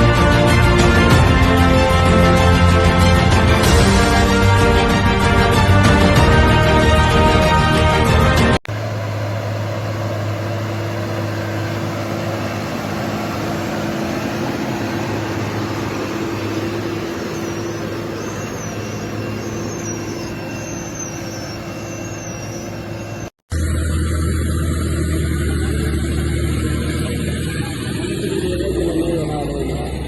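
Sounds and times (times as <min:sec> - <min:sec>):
tractor engine droning: 0:00.0 - 0:30.0
faint high chirps: 0:08.8 - 0:23.3.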